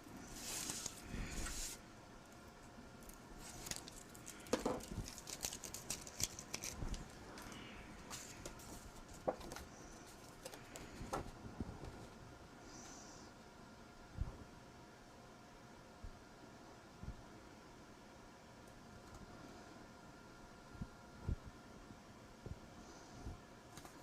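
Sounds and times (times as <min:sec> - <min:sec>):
paper rustling and sliding: 0:00.2 - 0:01.8, 0:08.1 - 0:09.7.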